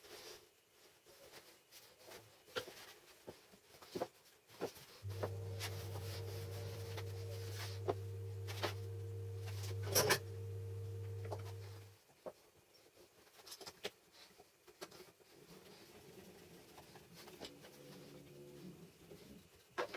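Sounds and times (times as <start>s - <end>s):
low electrical hum: 5.0s - 12.0s.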